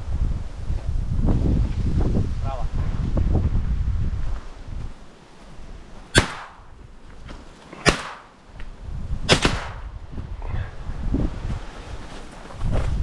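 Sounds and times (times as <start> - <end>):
wind rumbling on microphone: 0.0 - 13.0
shotgun shots with echo: 6.1 - 6.7, 7.8 - 8.3, 9.3 - 9.9.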